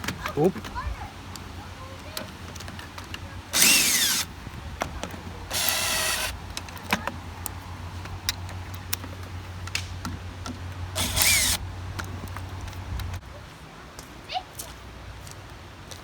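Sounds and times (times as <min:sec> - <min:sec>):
power drill whining: 0:03.5 - 0:04.3, 0:05.5 - 0:06.4, 0:11.0 - 0:11.6.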